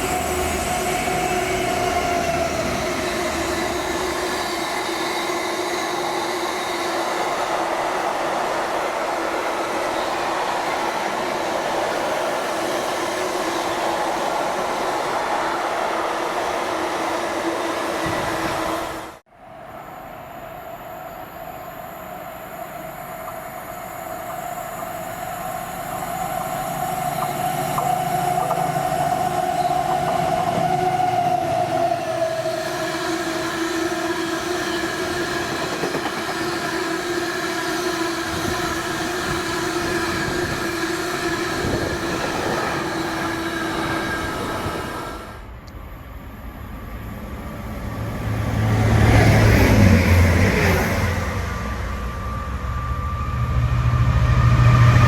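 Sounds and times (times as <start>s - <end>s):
train running past: 0.0s - 55.0s
continuous whine: 51.1s - 55.0s.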